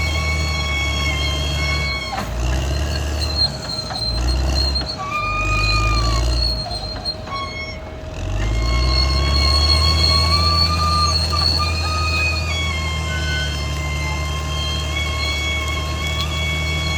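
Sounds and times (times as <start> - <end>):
bulldozer diesel engine running: 0.0 - 16.9
steel tracks squealing: 0.0 - 16.9.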